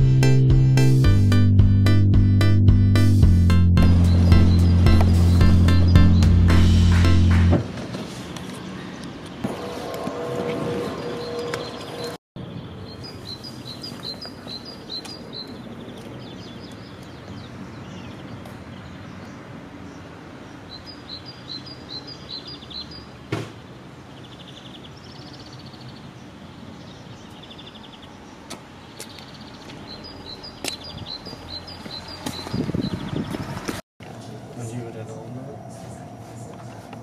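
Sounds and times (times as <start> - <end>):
songbird chirping: 3.9 - 7.0, 10.9 - 33.7.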